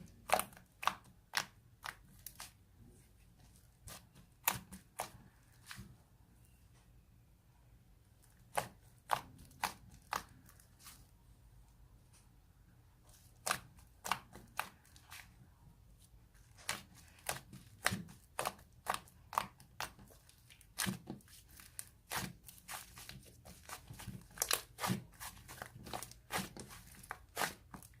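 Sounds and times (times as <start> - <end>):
slime popping and crackling: 16.6 - 28.0.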